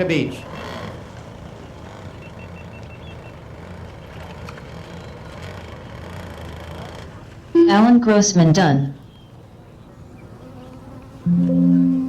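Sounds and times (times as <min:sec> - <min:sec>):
model boat engines droning: 0:00.0 - 0:12.0
short high beeps: 0:11.3 - 0:12.0.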